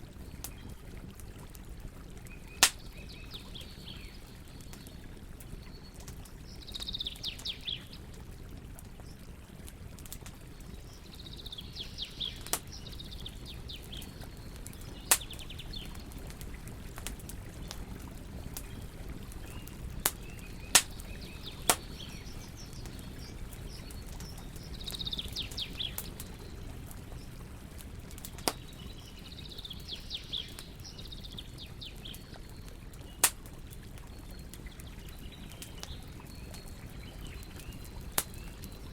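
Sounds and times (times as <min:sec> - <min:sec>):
campfire crackling and popping: 0:00.0 - 0:38.9
songbird chirping: 0:10.6 - 0:16.4, 0:18.4 - 0:27.6.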